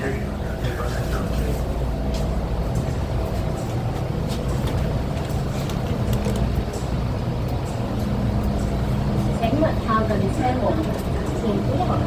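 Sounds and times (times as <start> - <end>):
train equipment humming: 0.0 - 12.0.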